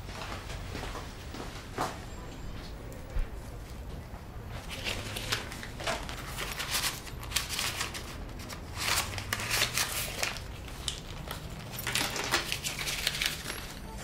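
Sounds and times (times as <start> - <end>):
banknotes pulled out: 4.6 - 14.0.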